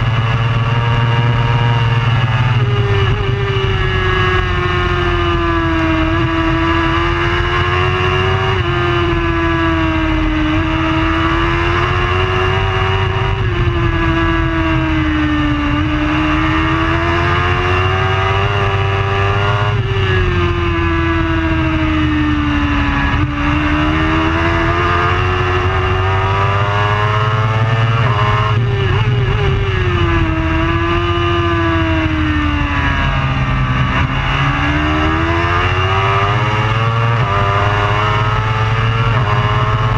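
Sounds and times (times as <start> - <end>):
motorbike engine revving: 0.0 - 39.9
steady low rumble: 8.7 - 17.6, 27.7 - 36.4.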